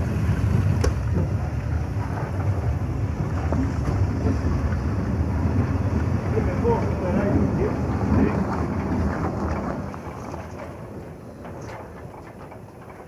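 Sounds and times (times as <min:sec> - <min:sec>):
railcar rumbling: 0:00.0 - 0:13.0
wind buffeting microphone: 0:00.0 - 0:13.0.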